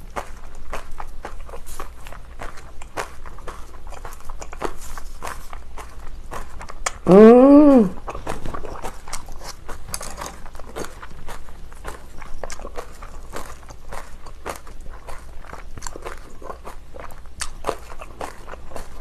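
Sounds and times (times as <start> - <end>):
crunchy chewing: 0.0 - 7.3, 7.9 - 19.0
closed-mouth hum: 5.4 - 13.3.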